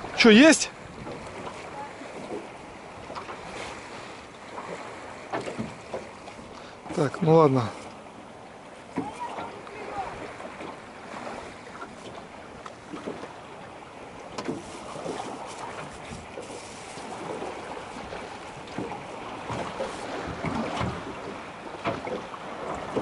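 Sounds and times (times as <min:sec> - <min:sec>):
wind buffeting microphone: 0:00.0 - 0:04.0.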